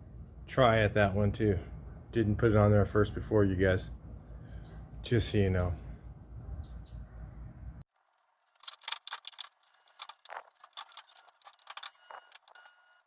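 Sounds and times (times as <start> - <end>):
metal tools clicking and rattling: 8.6 - 12.8.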